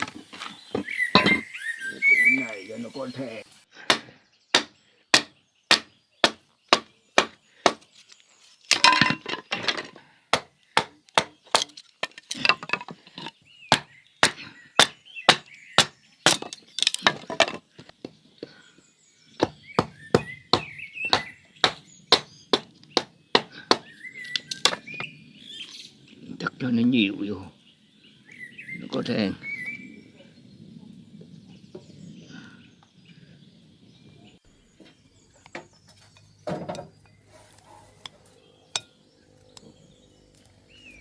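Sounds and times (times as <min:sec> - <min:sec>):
knife chopping: 0:03.9 - 0:07.8, 0:10.4 - 0:11.8, 0:13.7 - 0:17.0, 0:19.4 - 0:24.8.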